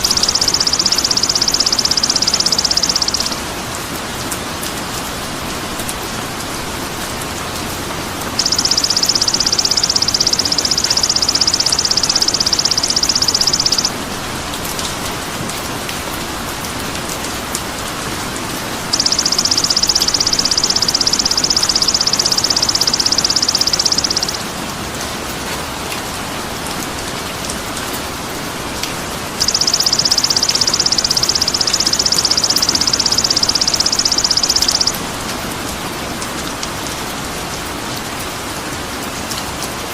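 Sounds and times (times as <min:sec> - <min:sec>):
steady rain-like hiss: 0:02.8 - 0:09.9, 0:13.1 - 0:20.0, 0:24.3 - 0:29.4, 0:34.9 - 0:39.9.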